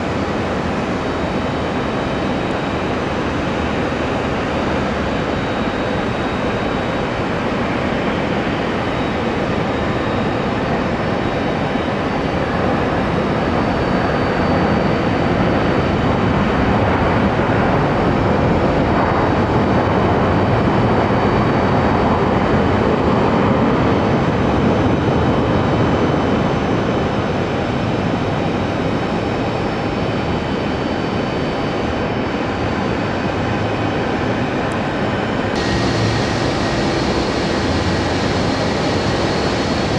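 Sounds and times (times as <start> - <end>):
jet engines rushing: 30.6 - 39.9
faint high whine: 33.2 - 39.9.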